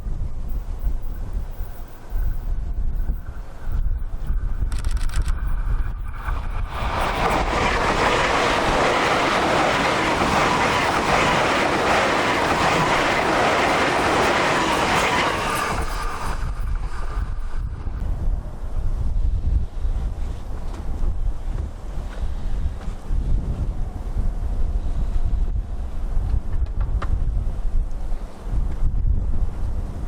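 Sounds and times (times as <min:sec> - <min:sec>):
wind buffeting microphone: 0:00.0 - 0:30.0
train wheels on rails: 0:00.9 - 0:19.0.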